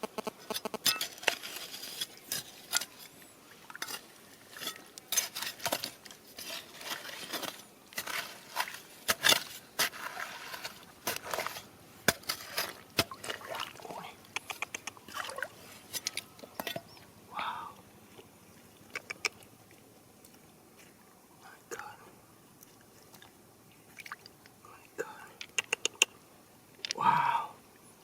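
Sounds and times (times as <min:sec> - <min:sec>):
stones and gravel being raked: 0:00.3 - 0:13.7.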